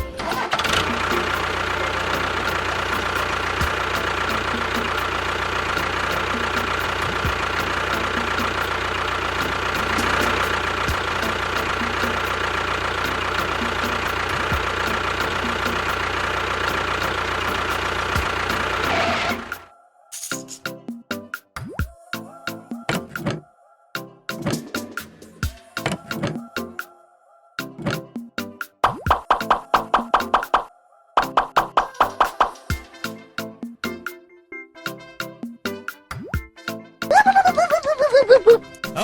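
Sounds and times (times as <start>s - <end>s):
small motor whining: 0.0s - 19.6s.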